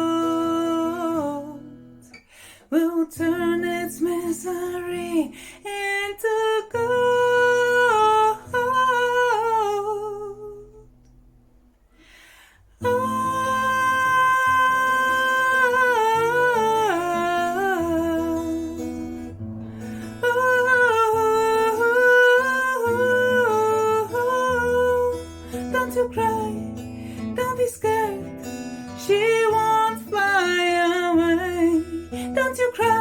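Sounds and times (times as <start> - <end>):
acoustic guitar: 0.0 - 33.0
breath: 2.2 - 2.7, 5.4 - 5.6, 11.9 - 12.8, 19.6 - 20.2, 26.9 - 27.4
woman humming a wordless melody: 12.8 - 19.2.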